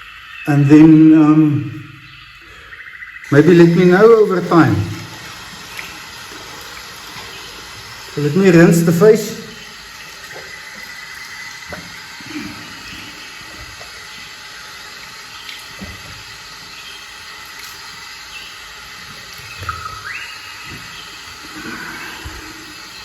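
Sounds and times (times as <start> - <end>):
splashing water on face: 3.2 - 23.0
tap water running into sink: 3.3 - 18.2, 18.8 - 21.6.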